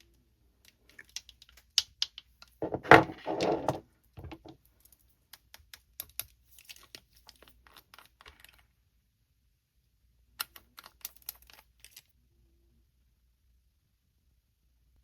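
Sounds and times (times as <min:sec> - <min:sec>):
small items clicking: 0:00.6 - 0:08.7, 0:10.4 - 0:12.1.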